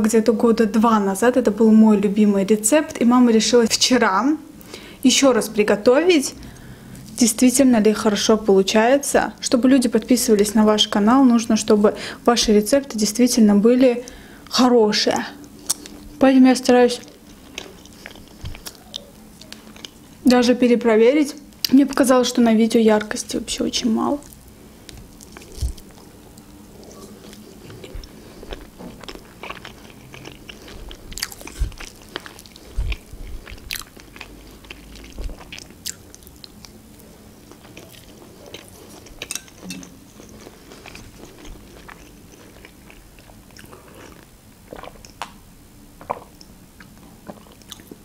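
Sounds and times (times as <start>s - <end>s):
biting and chewing cake: 24.9s - 36.8s.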